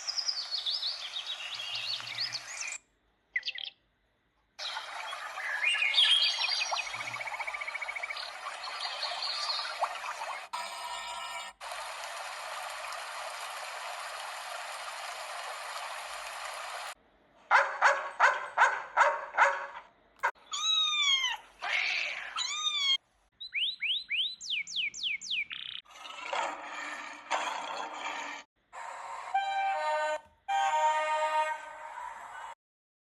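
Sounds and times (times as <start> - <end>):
high falling chirps: 4.6 - 10.2
cat meows: 20.5 - 23.0.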